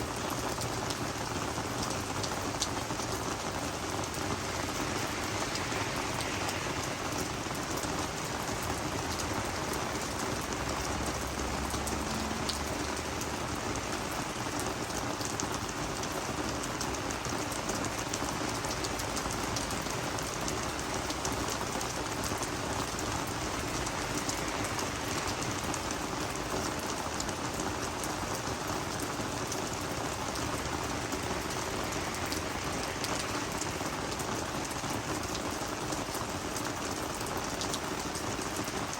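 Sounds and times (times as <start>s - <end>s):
rain falling on plants: 0.0s - 38.9s
raindrop ticks: 5.4s - 29.6s.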